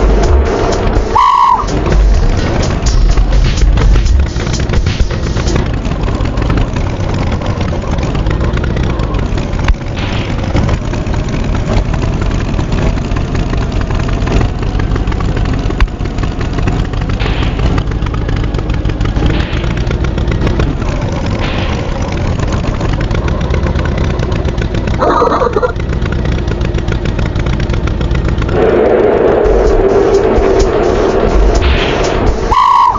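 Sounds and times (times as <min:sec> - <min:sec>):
cartoon tractor engine running: 0:00.0 - 0:32.9
short higher-pitched sound: 0:01.1 - 0:01.8, 0:28.6 - 0:32.9.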